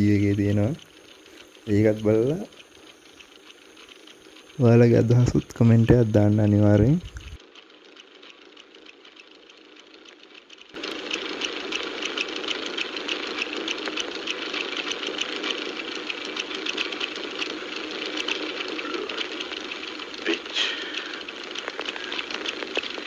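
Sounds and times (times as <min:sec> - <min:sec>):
car engine running with rattle: 0:00.0 - 0:23.0
faint hiss: 0:18.4 - 0:23.0.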